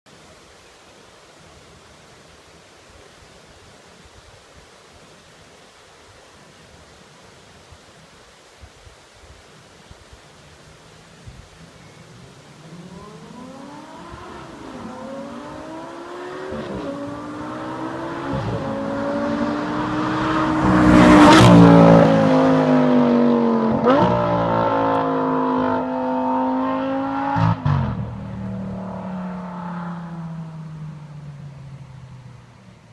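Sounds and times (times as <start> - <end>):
car engine accelerating hard: 12.6 - 31.0.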